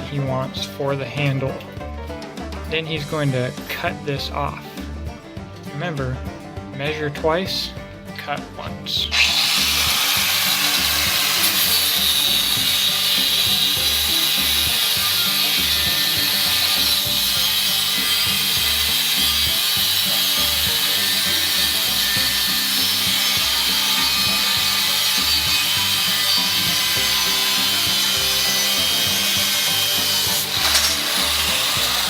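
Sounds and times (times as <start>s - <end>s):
background music: 0.0s - 32.0s
saw cutting steel: 8.9s - 32.0s.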